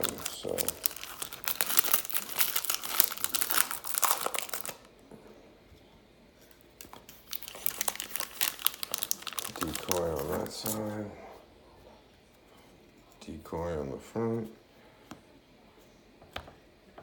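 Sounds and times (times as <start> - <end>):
card pack packaging crinkling: 0.0 - 4.9, 6.8 - 10.9.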